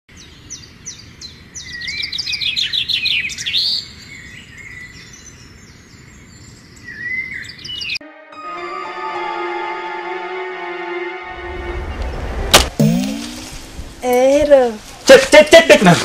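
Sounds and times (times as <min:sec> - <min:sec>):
birds chirping and calling: 0:00.1 - 0:08.0.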